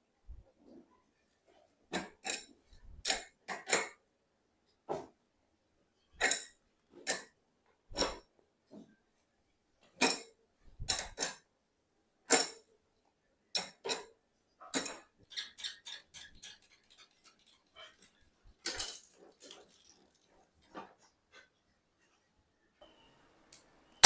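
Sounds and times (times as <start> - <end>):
metal tools clinking: 14.8 - 20.8.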